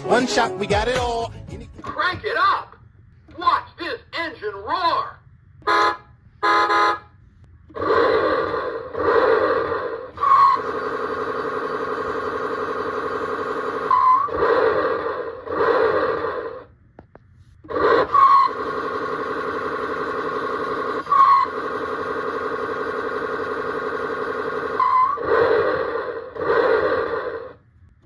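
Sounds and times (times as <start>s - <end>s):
toy engine sound from speaker: 7.7s - 16.7s, 17.7s - 27.6s.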